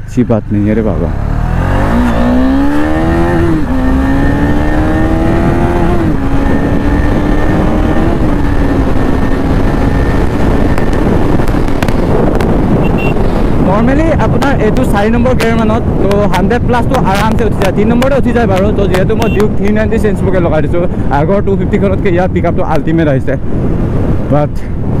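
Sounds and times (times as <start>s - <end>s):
wind rumble on microphone: 0.9s - 25.0s
motorcycle accelerating through gears: 1.0s - 13.7s.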